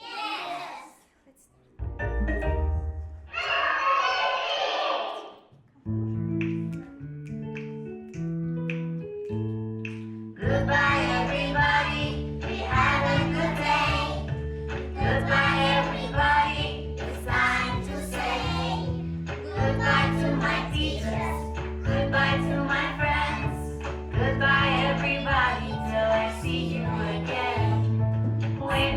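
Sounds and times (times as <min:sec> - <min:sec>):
instrumental backing music: 0:01.8 - 0:03.3, 0:05.8 - 0:28.9
children singing: 0:10.5 - 0:14.3, 0:15.0 - 0:18.9, 0:19.5 - 0:27.9.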